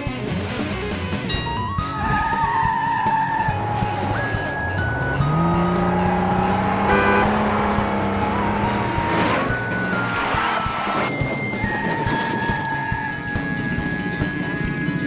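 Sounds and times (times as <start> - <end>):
background music: 0.0 - 15.0
racing car engine: 2.6 - 11.8.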